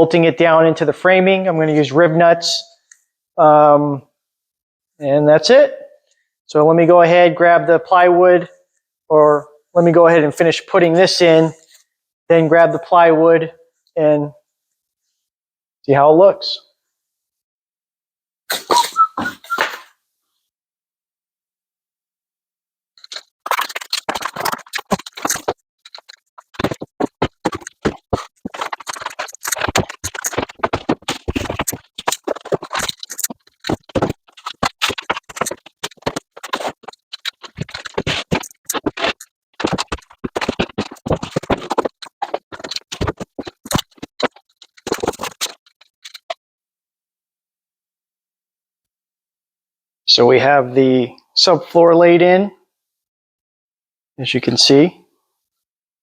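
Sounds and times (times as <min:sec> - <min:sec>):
boards scraping and knocking: 0:23.0 - 0:46.4.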